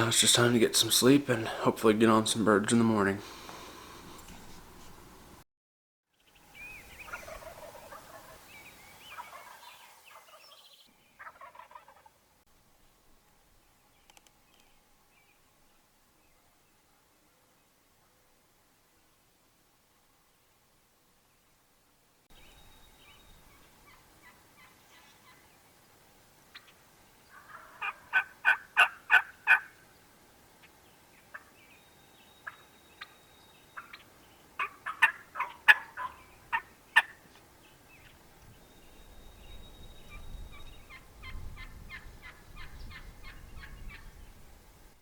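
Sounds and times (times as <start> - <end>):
turkeys gobbling: 7.0 - 12.2, 26.5 - 29.8, 31.2 - 31.6, 32.4 - 37.3, 40.9 - 44.0.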